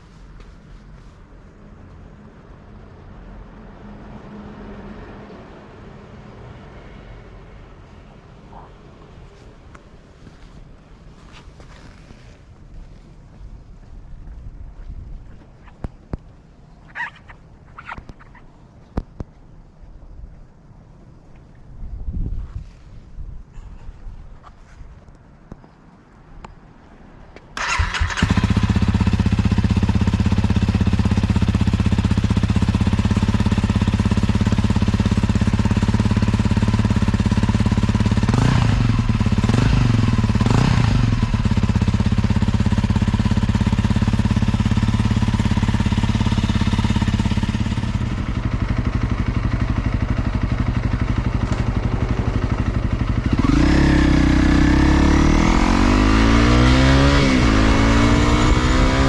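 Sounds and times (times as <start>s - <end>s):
motorcycle engine idling and revving: 27.6s - 59.0s.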